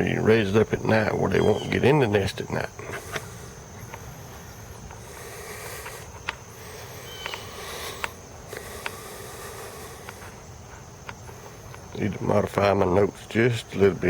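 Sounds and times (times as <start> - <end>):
high insect trill: 0.0 - 14.0
sharp clicks: 7.2 - 9.0.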